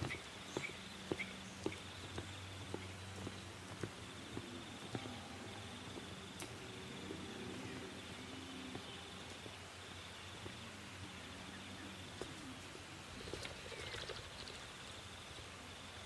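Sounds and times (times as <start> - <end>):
bird chirps: 0.0 - 3.4
faint outdoor ambience: 0.0 - 16.0.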